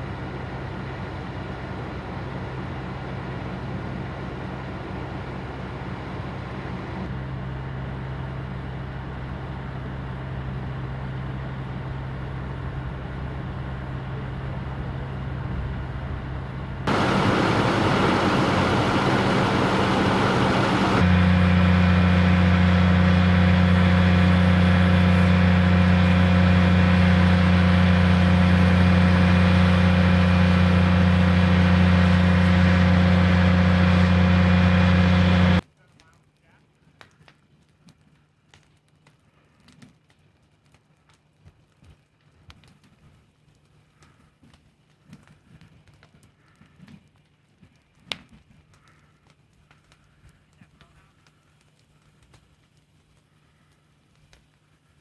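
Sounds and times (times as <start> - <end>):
loud engine noise: 0.0 - 35.6.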